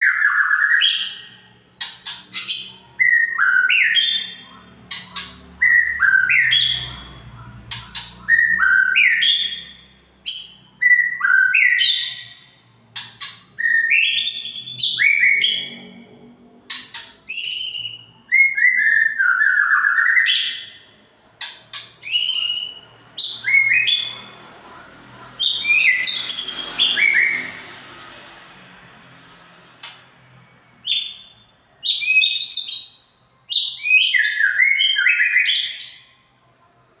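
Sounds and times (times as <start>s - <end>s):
bird singing sliding whistles: 16.7s - 20.6s, 21.4s - 24.1s.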